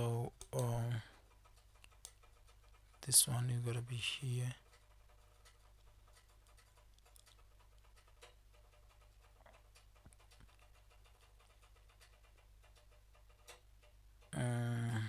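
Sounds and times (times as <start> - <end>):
low steady hum: 0.0 - 1.2, 14.1 - 15.0.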